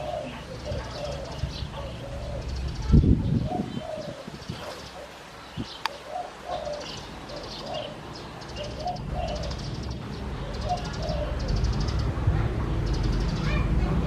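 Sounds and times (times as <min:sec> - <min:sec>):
dove cooing: 0:00.0 - 0:12.2
small birds chirping: 0:00.0 - 0:14.0
low rumble: 0:09.1 - 0:14.0.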